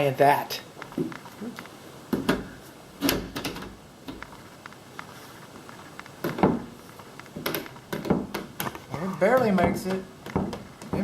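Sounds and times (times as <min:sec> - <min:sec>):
door latch clicks and knocks: 0:03.0 - 0:04.2.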